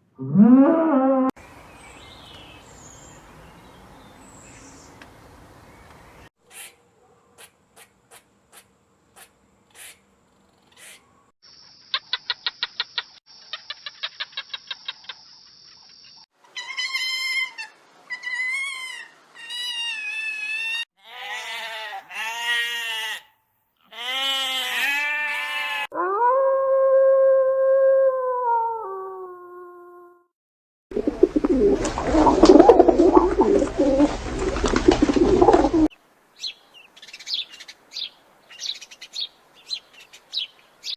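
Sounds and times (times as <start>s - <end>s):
high wavering animal calls: 31.0s - 35.9s.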